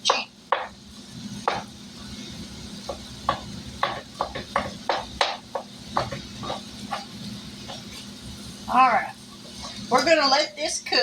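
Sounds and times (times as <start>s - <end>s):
utensil scraping frying pan: 1.3s - 10.0s.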